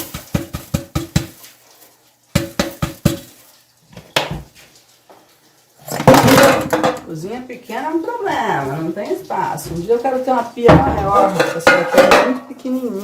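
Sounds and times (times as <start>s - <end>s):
cake pan knocking on surface: 0.0s - 1.4s, 2.4s - 3.3s.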